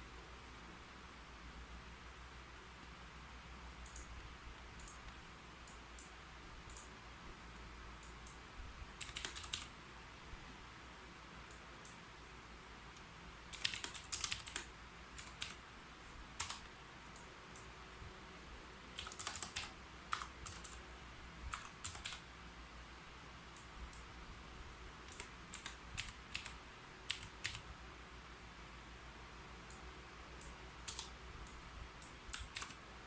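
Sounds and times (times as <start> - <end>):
keyboard typing: 4.8 - 6.1, 9.0 - 9.7, 13.0 - 15.6, 16.3 - 17.7, 18.9 - 20.8, 21.5 - 22.3, 25.0 - 27.7, 30.4 - 32.8.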